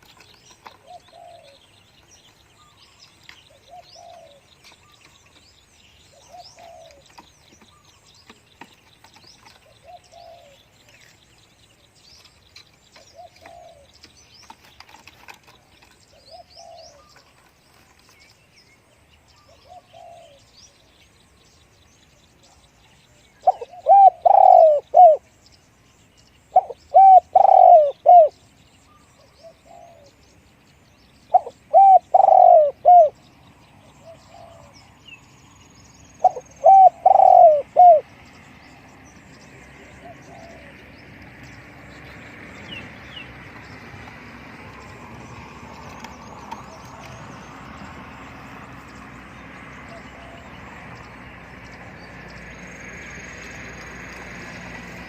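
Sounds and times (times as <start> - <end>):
doves cooing: 0.0 - 5.4, 6.1 - 10.8, 13.0 - 17.9, 19.4 - 20.5, 23.4 - 25.3, 26.5 - 28.4, 31.3 - 33.2, 33.8 - 35.0, 36.1 - 38.3, 39.4 - 52.4
small birds chirping: 0.0 - 55.0.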